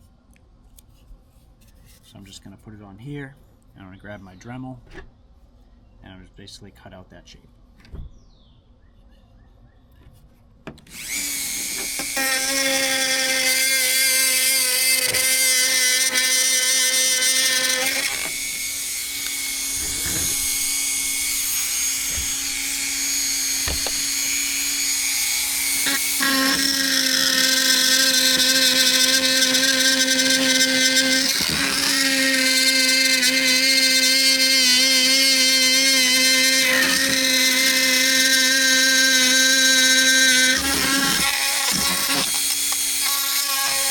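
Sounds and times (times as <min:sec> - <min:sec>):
rotary tool cutting plastic: 0:10.8 - 0:43.9.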